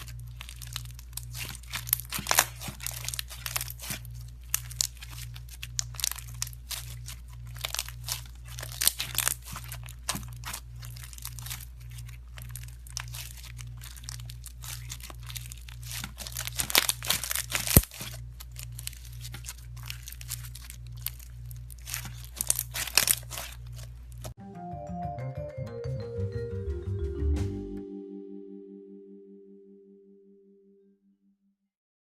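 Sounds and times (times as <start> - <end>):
crunchy slime crackling: 0.0 - 24.4
low steady hum: 0.0 - 31.0.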